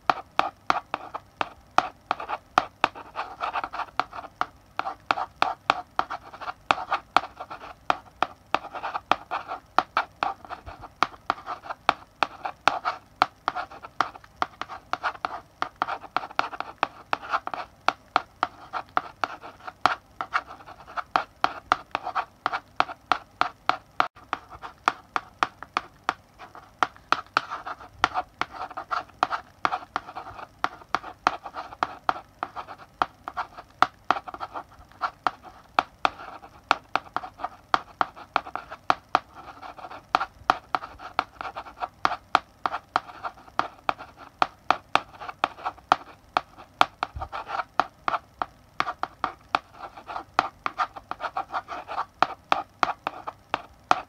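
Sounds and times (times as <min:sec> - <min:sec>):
chalk writing on a blackboard: 0:00.0 - 0:54.0.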